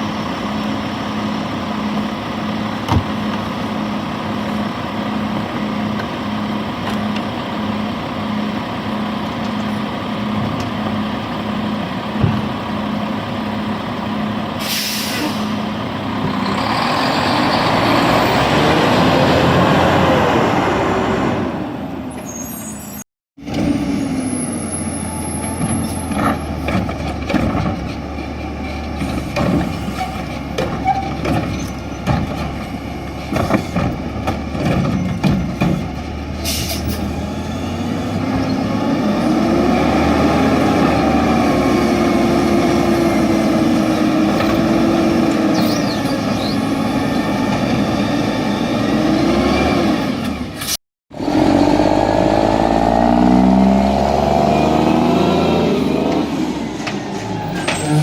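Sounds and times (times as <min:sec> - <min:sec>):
garbage truck engine: 0:00.0 - 0:58.0
air brakes hissing: 0:14.6 - 0:15.6, 0:36.4 - 0:37.1.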